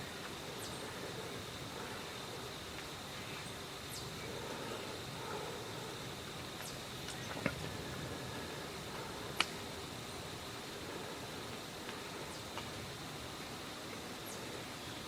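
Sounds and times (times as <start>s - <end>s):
steady hiss: 0.0s - 15.0s
faint ticks: 9.0s - 9.6s, 11.5s - 12.8s.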